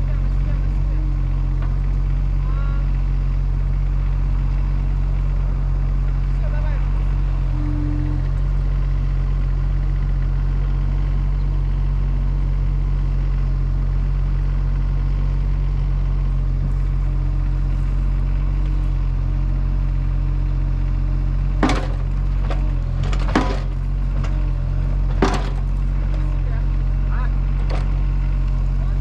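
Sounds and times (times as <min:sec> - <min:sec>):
engine running steadily: 0:00.0 - 0:29.0
sharp knocks: 0:21.6 - 0:24.5, 0:25.1 - 0:26.2.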